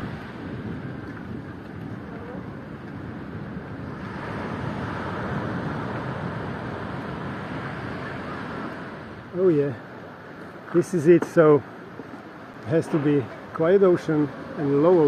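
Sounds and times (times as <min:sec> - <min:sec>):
ocean surf on shore: 0:00.0 - 0:15.0
wind buffeting microphone: 0:00.0 - 0:15.0.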